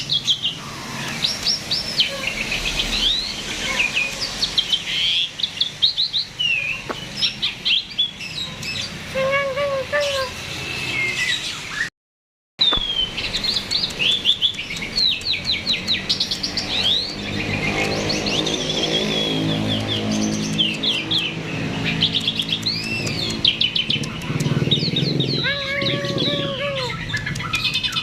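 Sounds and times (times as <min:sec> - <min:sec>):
starling singing: 0:12.6 - 0:28.0.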